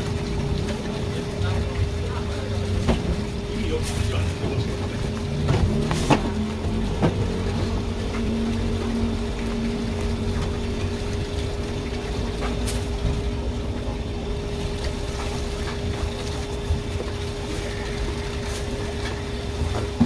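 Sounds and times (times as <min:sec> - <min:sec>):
mechanical hum with low rumble: 0:00.0 - 0:20.0.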